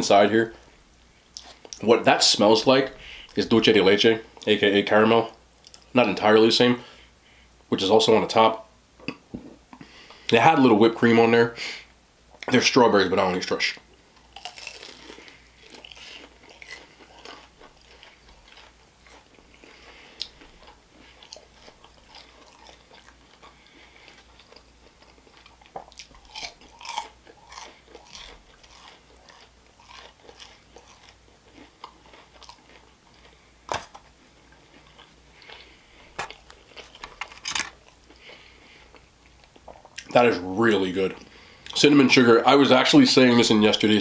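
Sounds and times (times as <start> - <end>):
crunchy chewing: 14.1 - 40.2.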